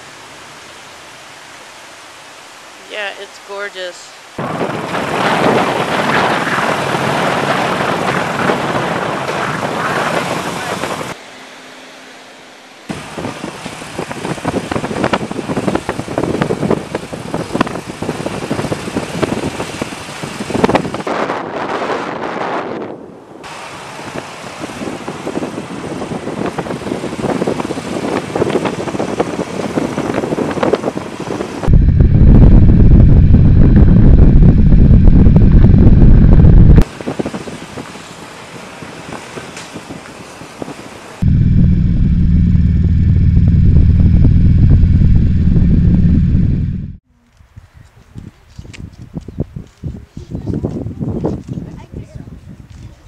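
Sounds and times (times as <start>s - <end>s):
motorcycle road and wind hiss: 0.0s - 53.0s
loud low motorcycle rumble: 31.6s - 36.9s, 41.2s - 47.2s.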